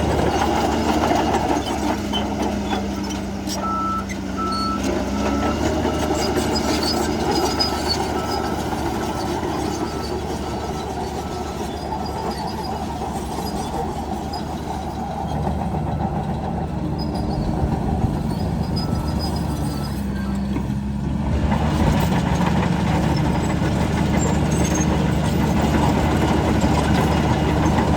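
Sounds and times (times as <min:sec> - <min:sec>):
bulldozer diesel engine clattering: 0:00.0 - 0:27.9
faint reversing beep: 0:03.6 - 0:12.9, 0:18.3 - 0:20.6.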